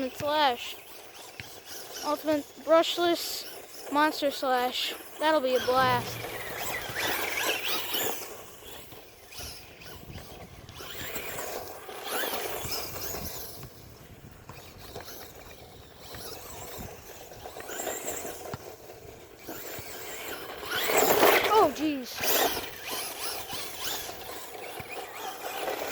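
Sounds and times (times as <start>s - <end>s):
rc truck motor whining: 0.0s - 25.9s
rough rushing noise: 5.7s - 7.4s.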